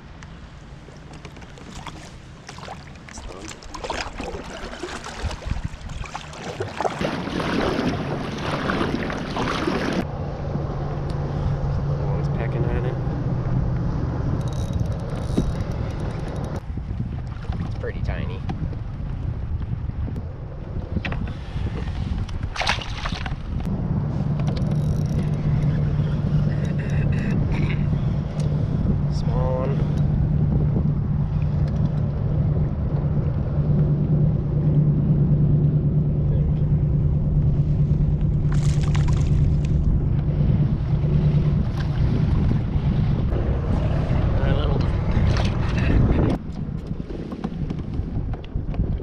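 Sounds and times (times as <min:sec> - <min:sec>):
low motor hum: 0:00.0 - 0:49.0
water splashing around a kayak: 0:00.4 - 0:10.1, 0:15.4 - 0:49.0
short water splash: 0:01.5 - 0:10.0, 0:22.5 - 0:23.4, 0:38.4 - 0:39.8
steady low hum: 0:23.4 - 0:46.5.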